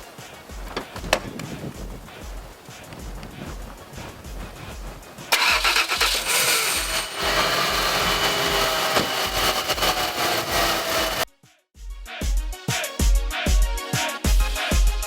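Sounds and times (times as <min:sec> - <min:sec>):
car engine running: 0:05.3 - 0:11.2
car starter cranking: 0:05.3 - 0:11.2.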